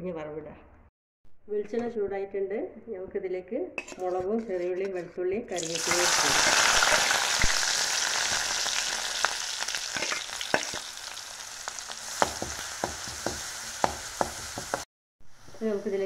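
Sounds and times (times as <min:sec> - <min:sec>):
spices sizzling in hot oil: 0:05.6 - 0:14.9.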